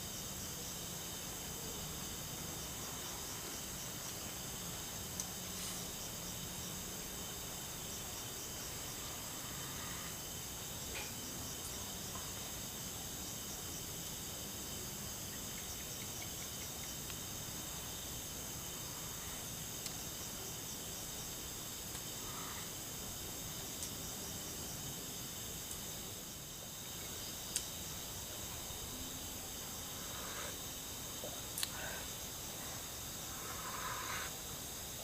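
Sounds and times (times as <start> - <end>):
crickets and insects trilling: 0.0 - 35.0
faint background hiss: 0.0 - 35.0
faint ticks: 5.1 - 5.8, 10.8 - 11.3, 15.5 - 17.3, 19.2 - 20.1, 21.8 - 22.8, 23.7 - 24.0, 25.6 - 25.9, 26.9 - 27.9, 31.2 - 32.0.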